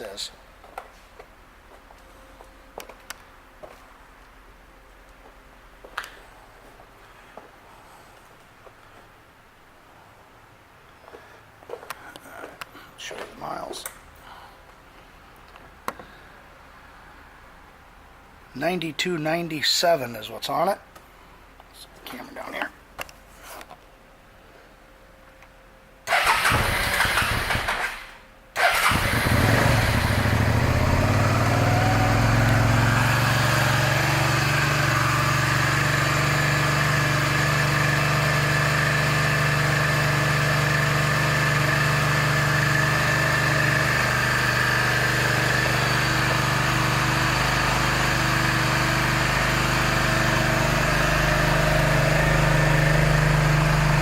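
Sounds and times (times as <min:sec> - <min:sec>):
motorcycle engine starting: 0:26.1 - 0:54.0
motorcycle engine idling: 0:28.8 - 0:54.0.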